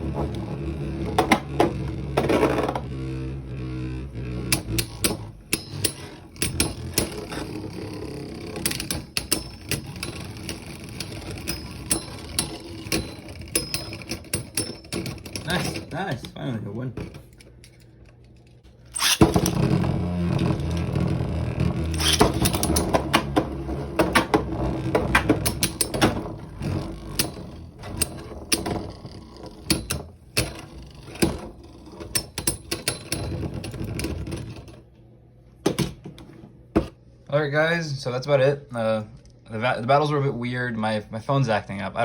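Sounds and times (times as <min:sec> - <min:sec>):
spinning tops whirring and clashing: 0:04.2 - 0:15.9, 0:18.9 - 0:19.6, 0:21.9 - 0:28.9.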